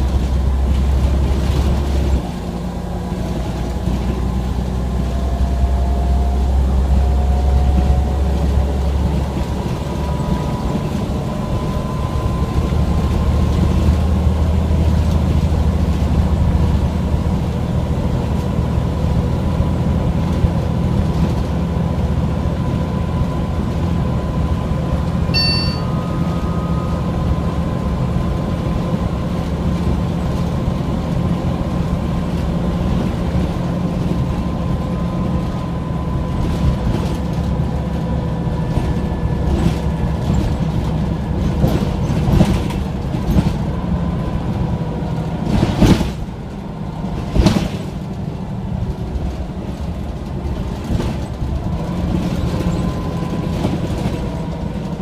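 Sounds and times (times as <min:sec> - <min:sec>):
diesel bus engine rumble: 0:00.0 - 0:55.0
drivetrain whine: 0:22.6 - 0:43.1.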